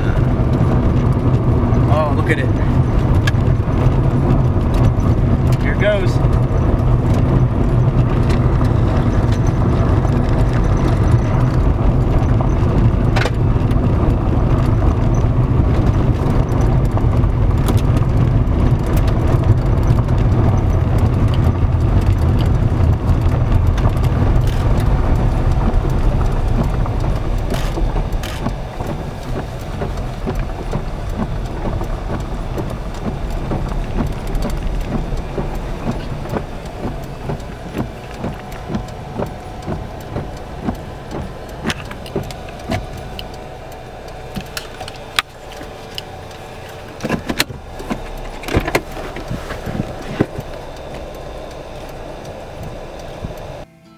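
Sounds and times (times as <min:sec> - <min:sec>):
car cabin road rumble: 0:00.0 - 0:53.7
clicks: 0:18.8 - 0:53.7.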